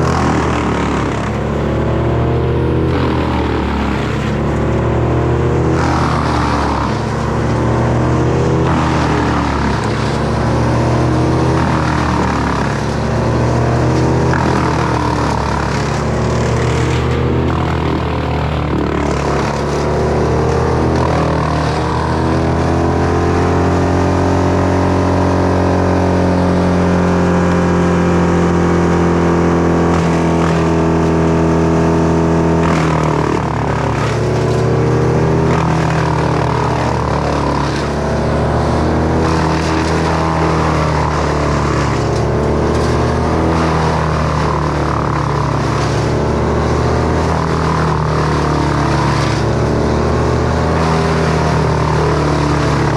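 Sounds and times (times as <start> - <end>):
chainsaw cutting: 0.0 - 52.9.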